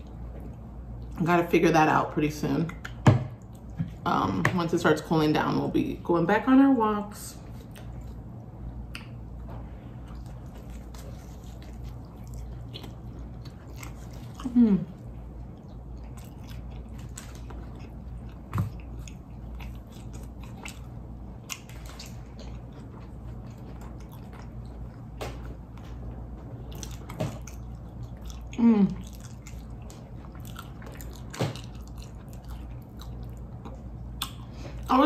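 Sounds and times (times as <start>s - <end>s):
crunchy chewing: 10.0s - 34.9s.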